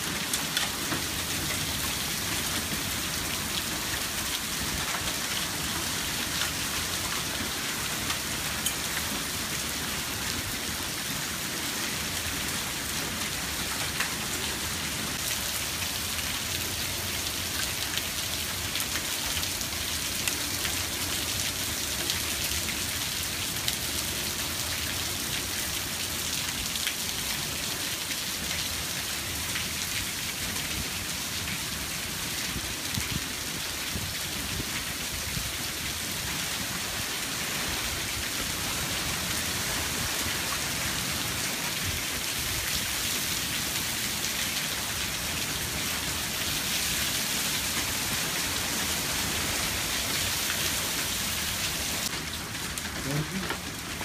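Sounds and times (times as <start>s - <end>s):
raindrops ticking on hard surfaces: 0.0s - 9.6s, 13.2s - 14.5s, 15.1s - 54.0s
heavy rain on patio and lawn: 0.0s - 54.0s.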